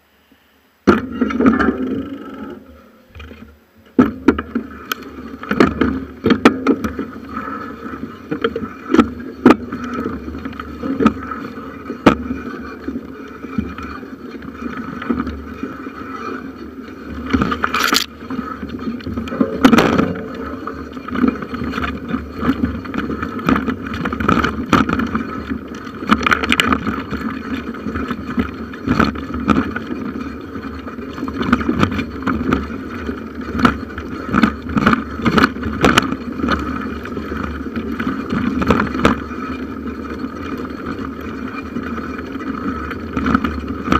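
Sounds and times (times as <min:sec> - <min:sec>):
bicycle rolling rumble and rattle: 0:00.9 - 0:43.9
knocks from bumps: 0:19.2 - 0:25.4.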